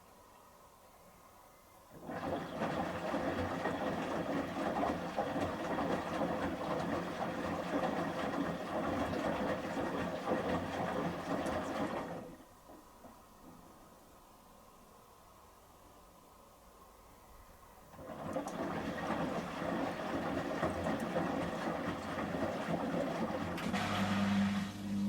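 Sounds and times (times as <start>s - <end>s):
washing machine drum sloshing: 1.9s - 13.6s, 17.9s - 25.0s.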